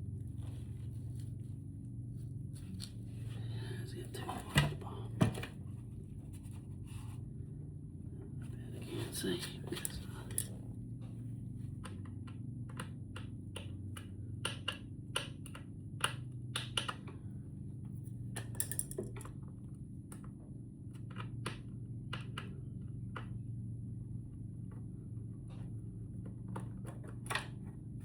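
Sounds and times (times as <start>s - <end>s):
steady low hum: 0.0s - 28.0s
light clicks and taps of tools: 9.7s - 10.6s, 18.4s - 19.3s.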